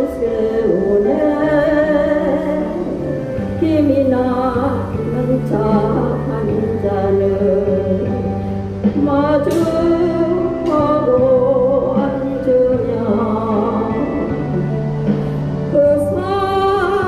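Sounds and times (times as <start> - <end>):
karaoke backing music: 0.0 - 17.0
person singing: 9.0 - 17.0.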